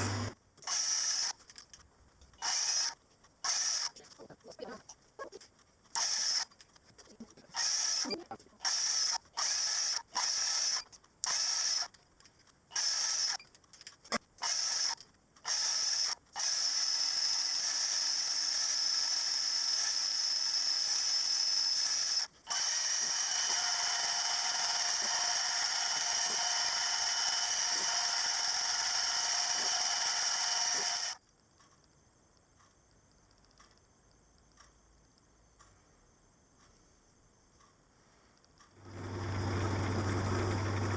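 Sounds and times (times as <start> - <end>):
tool motor whining: 0.0 - 1.5, 2.4 - 4.1, 5.9 - 6.6, 7.5 - 12.0, 12.7 - 13.5, 14.4 - 31.2, 38.8 - 40.9.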